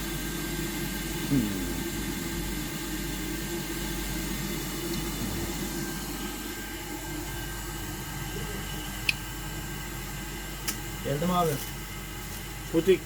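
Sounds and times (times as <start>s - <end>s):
hot air blower hissing: 0.0s - 9.2s.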